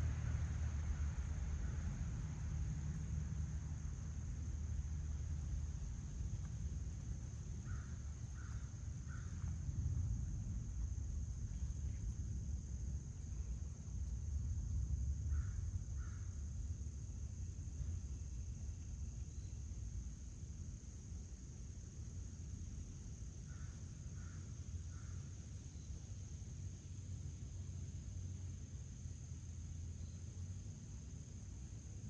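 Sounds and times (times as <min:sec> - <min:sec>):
crickets droning: 0:00.0 - 0:32.0
low outdoor rumble: 0:00.0 - 0:32.0.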